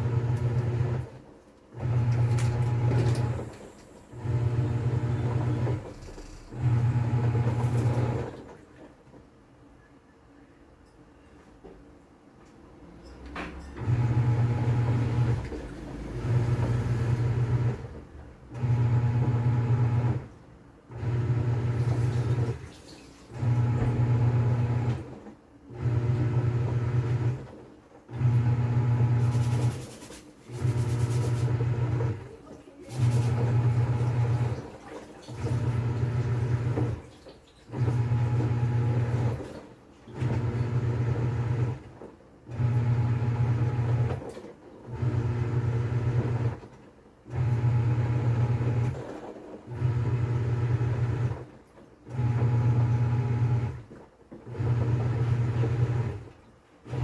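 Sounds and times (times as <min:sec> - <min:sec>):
washing machine motor humming: 0:00.0 - 0:08.9, 0:13.7 - 0:57.0
water and clothes churning: 0:13.9 - 0:20.0, 0:21.0 - 0:24.8, 0:28.2 - 0:46.5, 0:47.3 - 0:57.0.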